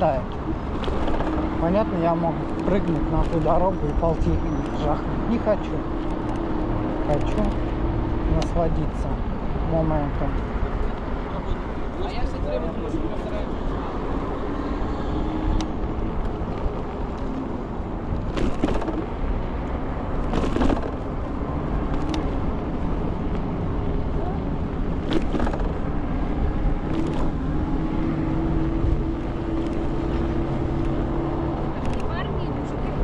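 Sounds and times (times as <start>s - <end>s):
tyres on road: 0.0s - 33.0s
sharp knocks over bumps: 18.2s - 19.2s, 20.2s - 21.2s, 25.0s - 25.9s.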